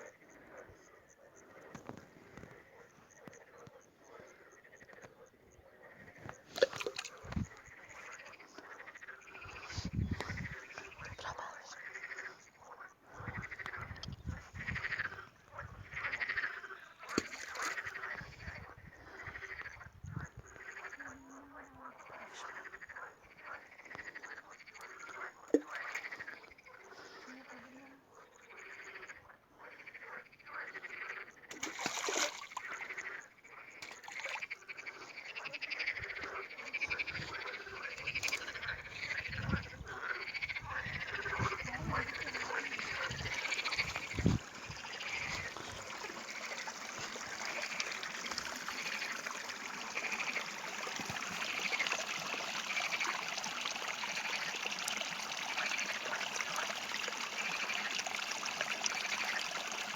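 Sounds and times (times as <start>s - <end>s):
running water hiss: 31.6s - 32.9s, 41.0s - 59.9s
repeated animal calls: 34.5s - 53.4s.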